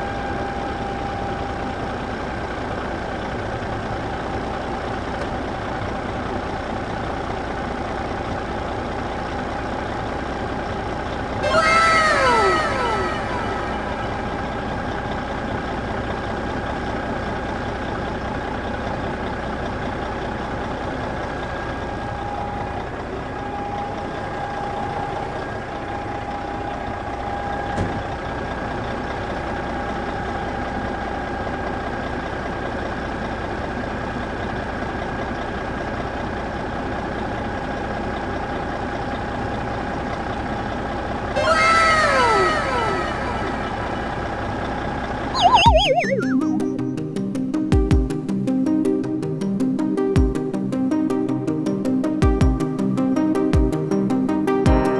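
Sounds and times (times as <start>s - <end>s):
vehicle engine running: 0.0s - 54.1s
faint held tone: 45.4s - 47.0s.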